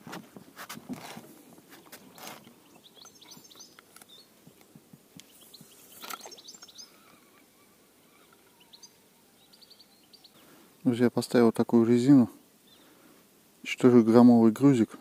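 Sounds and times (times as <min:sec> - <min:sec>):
rustling handling noise: 0:00.0 - 0:06.8
faint bird chirping: 0:01.7 - 0:11.4, 0:12.0 - 0:14.2.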